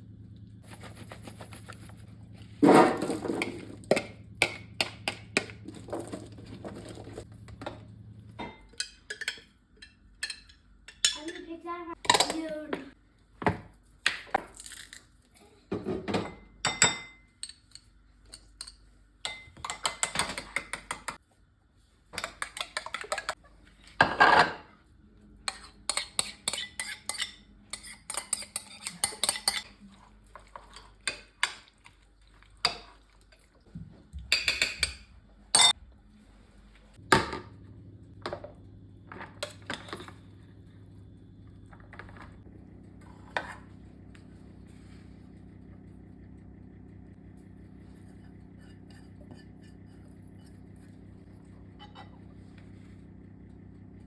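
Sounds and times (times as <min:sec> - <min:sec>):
dishes and cutlery clattering: 0:08.4 - 0:11.5
steady low hum: 0:35.2 - 0:54.0.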